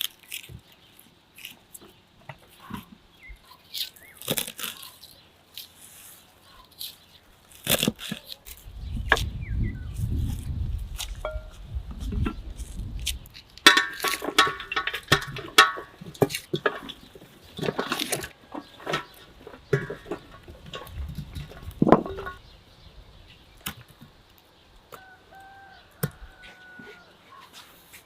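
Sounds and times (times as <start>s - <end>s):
pots and dishes clattering: 13.7s - 22.4s.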